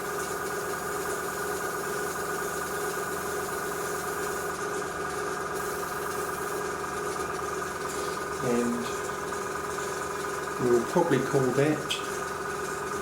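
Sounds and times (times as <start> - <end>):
airbrush compressor humming: 0.0 - 13.0
airbrush spraying: 0.1 - 4.6, 5.6 - 6.8.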